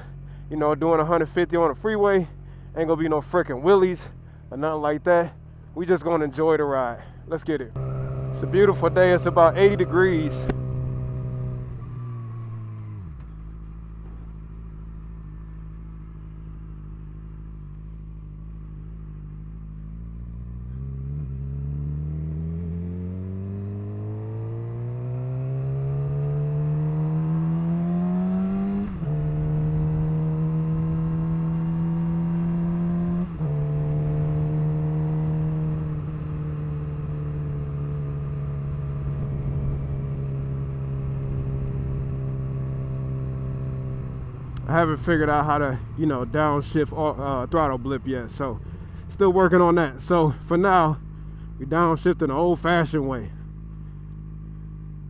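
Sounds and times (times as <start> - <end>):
loud motorcycle engine revving: 7.8 - 13.2, 19.9 - 47.8.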